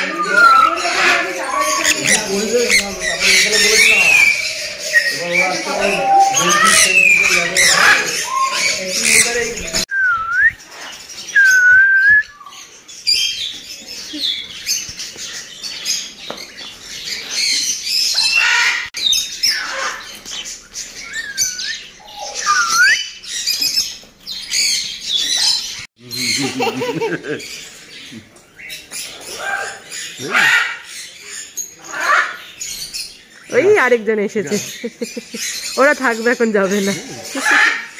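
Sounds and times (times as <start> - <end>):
parrots squawking and screeching: 0.0 - 9.9, 16.8 - 33.8, 34.4 - 37.9
parrot whistled calls: 0.0 - 10.6, 21.0 - 23.2.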